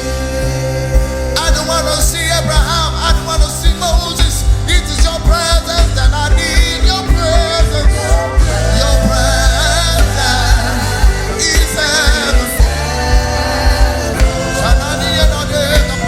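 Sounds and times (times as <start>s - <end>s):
held bass notes: 0.0s - 16.0s
steady drum beat: 0.0s - 16.0s.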